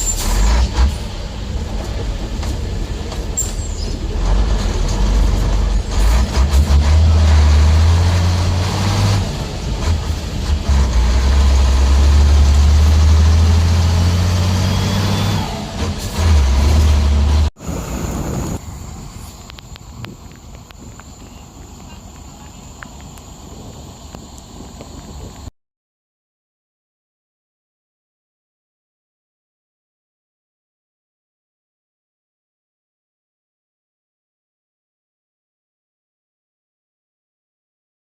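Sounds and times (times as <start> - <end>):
heavy vehicle engine rumbling: 0.0 - 25.5.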